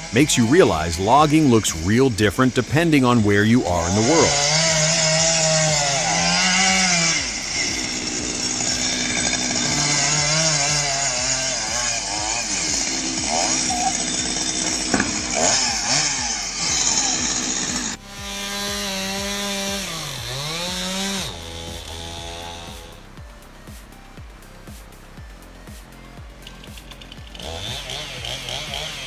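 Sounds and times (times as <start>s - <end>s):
chainsaw revving: 0.0s - 23.1s, 26.5s - 29.0s
steady pitched drone: 0.0s - 29.0s.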